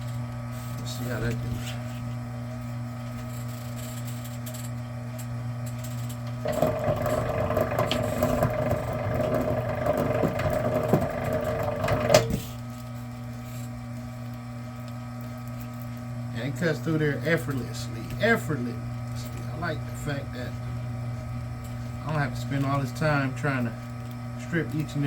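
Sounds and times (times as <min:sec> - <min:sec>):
machine motor hum: 0:05.4 - 0:25.0
blade grinding rattle: 0:05.6 - 0:12.5.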